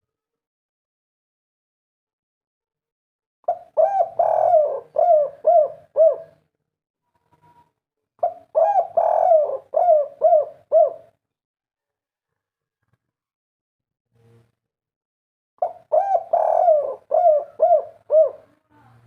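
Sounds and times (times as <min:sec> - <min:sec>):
dove cooing: 0:03.5 - 0:06.4, 0:08.2 - 0:11.2, 0:15.6 - 0:18.6.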